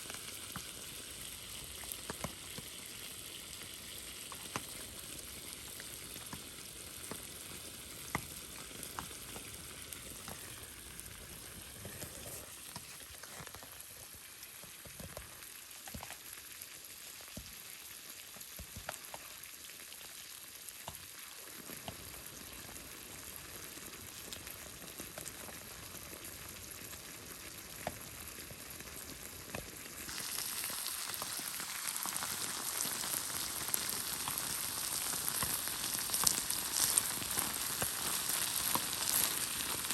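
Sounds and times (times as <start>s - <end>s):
food sizzling in a pan: 0.0s - 39.9s
small pops: 1.6s - 3.0s, 4.2s - 13.8s, 29.5s - 39.9s.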